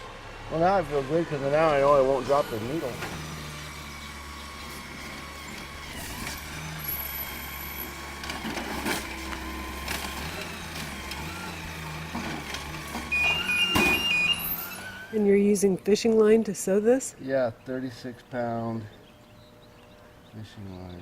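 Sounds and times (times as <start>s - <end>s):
short high beeps: 13.1s - 15.2s.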